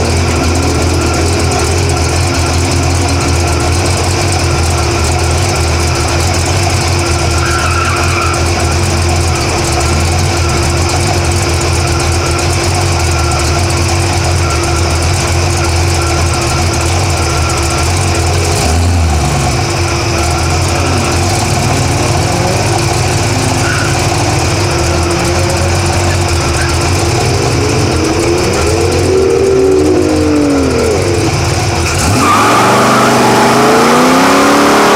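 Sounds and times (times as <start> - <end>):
car engine idling roughly: 0.0 - 34.9
steady whine: 0.0 - 34.9
wavering pitch sweeps: 19.8 - 34.9.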